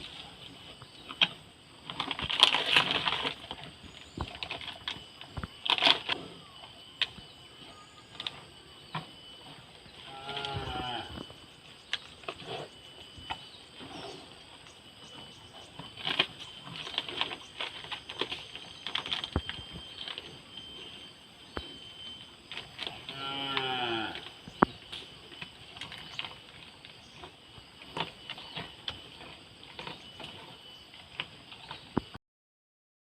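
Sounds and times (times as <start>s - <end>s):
cows chewing hard seeds: 0.0s - 32.1s
cow call: 10.0s - 11.2s.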